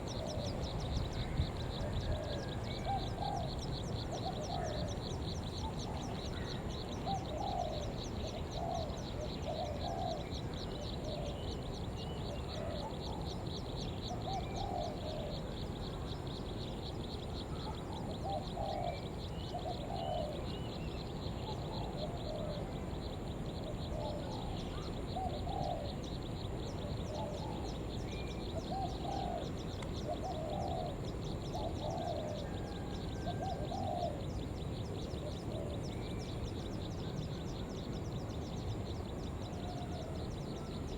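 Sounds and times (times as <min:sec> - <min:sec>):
dove cooing: 0:05.6 - 0:10.2, 0:17.6 - 0:20.4, 0:23.9 - 0:26.0, 0:28.7 - 0:34.3.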